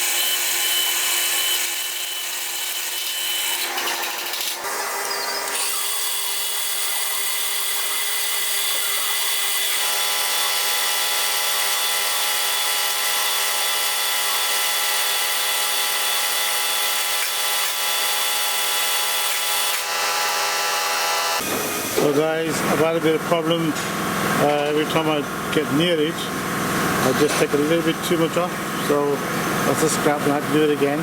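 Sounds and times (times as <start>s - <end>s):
lathe motor whine: 19.2s - 22.2s.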